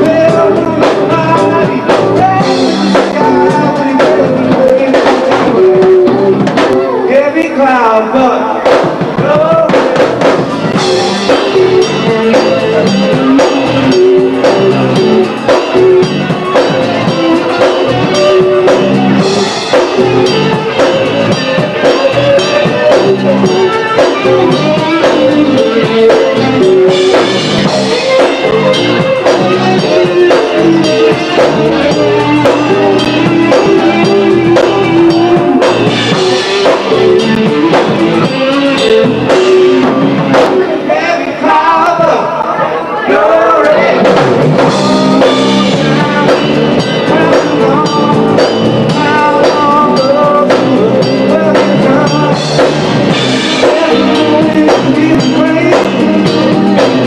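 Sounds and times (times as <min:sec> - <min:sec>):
drum kit steady beat: 0:00.0 - 0:40.9, 0:43.6 - 0:57.0
guitar and bass: 0:00.0 - 0:57.0.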